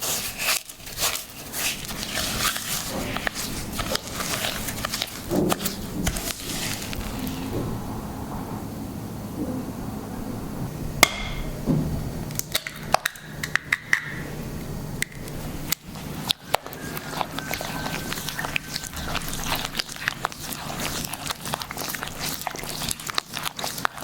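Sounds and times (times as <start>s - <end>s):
household objects clicking and tapping: 12.3s - 14.2s.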